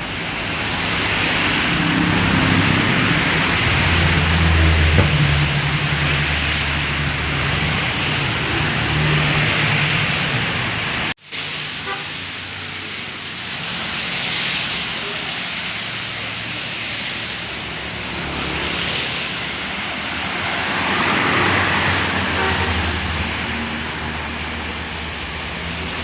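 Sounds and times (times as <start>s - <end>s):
rain: 0.0s - 26.0s
traffic on a wet road: 0.0s - 26.0s.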